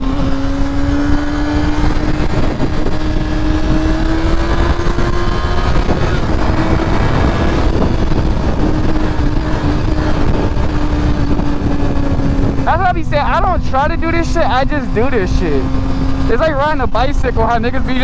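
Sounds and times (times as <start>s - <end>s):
motorcycle engine running: 0.0s - 18.0s
wind rush on microphone: 0.0s - 18.0s.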